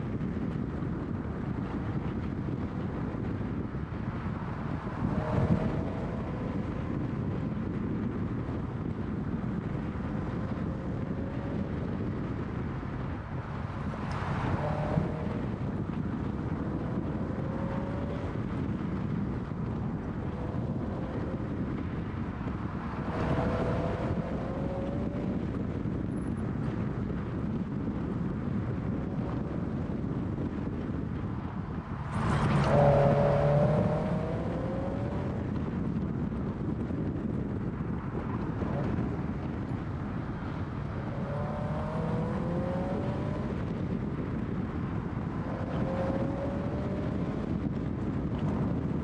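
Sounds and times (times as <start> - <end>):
road noise: 0.0 - 49.0
wind buffeting microphone: 0.0 - 49.0
car engine accelerating: 1.6 - 26.9, 28.8 - 49.0.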